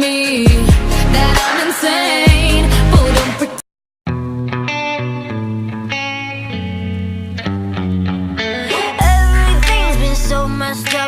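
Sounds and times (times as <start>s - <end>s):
guitar background music: 4.1s - 11.0s.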